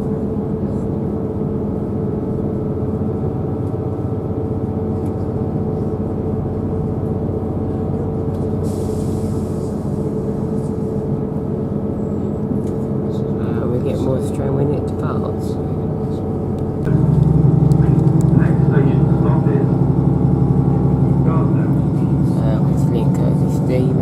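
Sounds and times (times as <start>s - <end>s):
train engine and wheels droning: 0.0s - 24.0s
air hiss: 8.6s - 10.7s.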